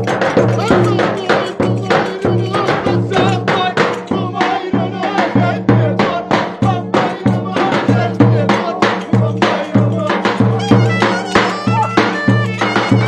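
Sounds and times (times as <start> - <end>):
drum beat: 0.0 - 13.0
ornamented wavering melody: 10.6 - 13.0.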